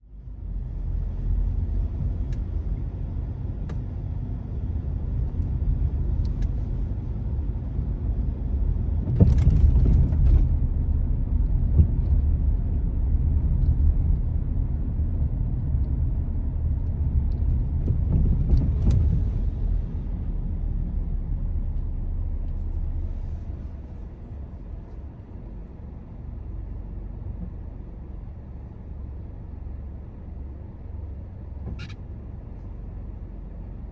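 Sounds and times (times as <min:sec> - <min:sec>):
car road and engine rumble: 0:00.0 - 0:33.9.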